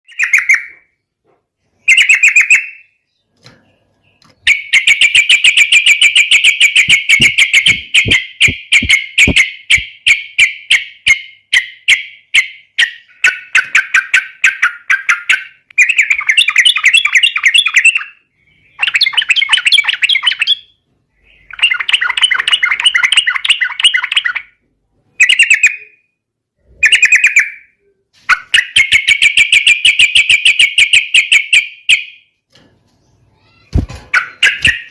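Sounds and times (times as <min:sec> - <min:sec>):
bird singing rattling notes: 0:01.8 - 0:24.6, 0:33.0 - 0:34.9.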